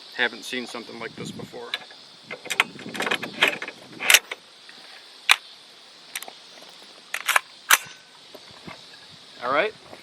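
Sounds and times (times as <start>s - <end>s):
metallic clicks of rifle parts: 7.1s - 8.0s.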